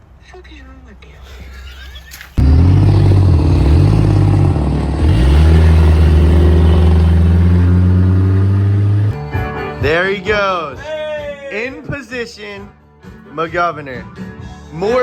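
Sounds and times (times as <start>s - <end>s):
small motorbike engine running hard: 2.4s - 9.2s.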